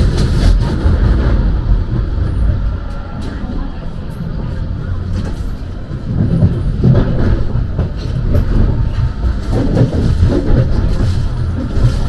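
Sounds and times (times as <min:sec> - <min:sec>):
train rumbling on rails: 0:00.0 - 0:12.0
wheels knocking: 0:05.0 - 0:12.0.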